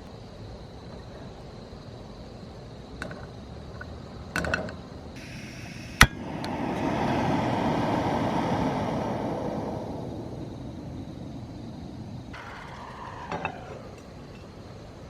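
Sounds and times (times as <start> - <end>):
vehicle passing by: 5.2 - 14.2.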